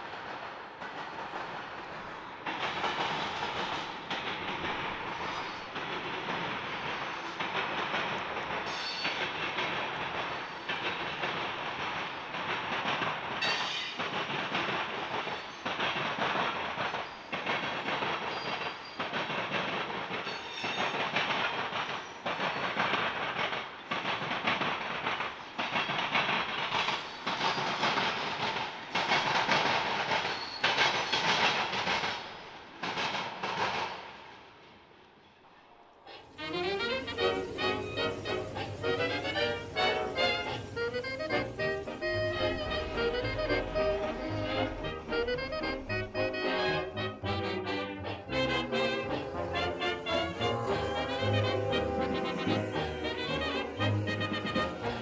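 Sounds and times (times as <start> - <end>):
train wheels clattering over crossing: 0.0 - 34.8, 36.1 - 55.0
high wheel squeals: 36.1 - 55.0.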